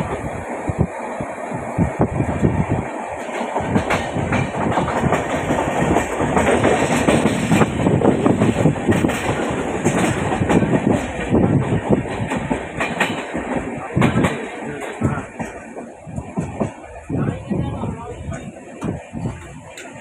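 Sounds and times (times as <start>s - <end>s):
train rumbling: 0.0s - 20.0s
wheels clattering over rail joints: 3.2s - 16.8s.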